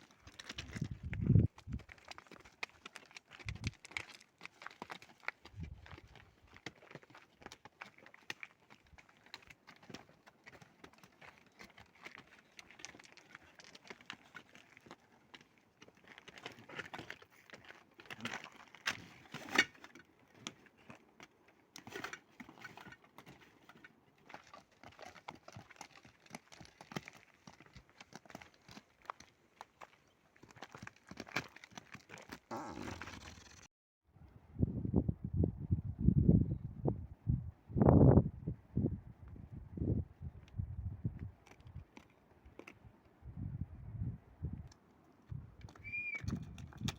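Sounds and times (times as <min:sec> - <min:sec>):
footsteps on a trail: 0:00.0 - 0:19.4, 0:22.2 - 0:33.3.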